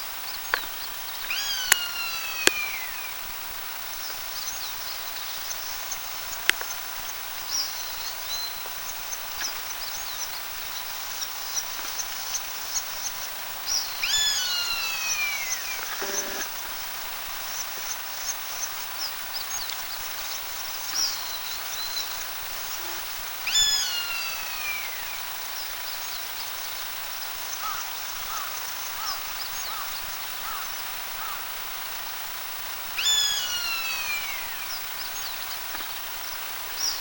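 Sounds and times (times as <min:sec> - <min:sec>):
background hiss: 0:00.0 - 0:37.0
buzzard alarm call: 0:14.1 - 0:16.6
faint short chirps: 0:15.6 - 0:16.5.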